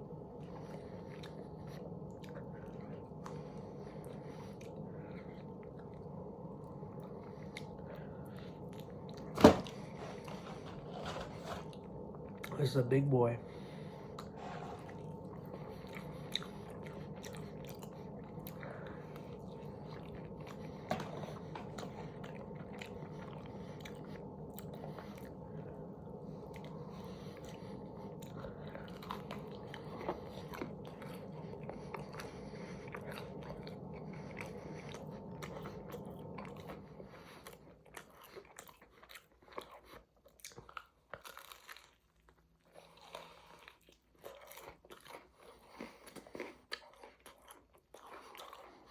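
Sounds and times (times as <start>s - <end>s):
low background hum: 0.0s - 48.9s
chewing chicken wings: 0.5s - 10.7s, 13.6s - 48.9s.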